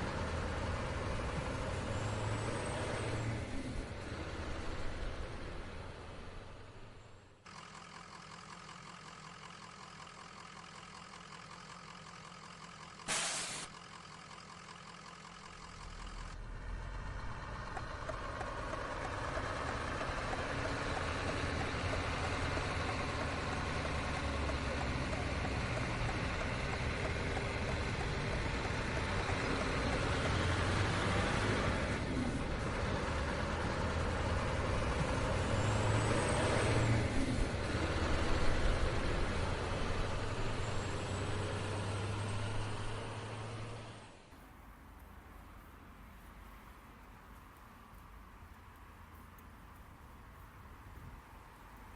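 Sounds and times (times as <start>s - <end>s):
truck engine idling: 5.4s - 35.3s
air brakes hissing: 13.1s - 13.8s.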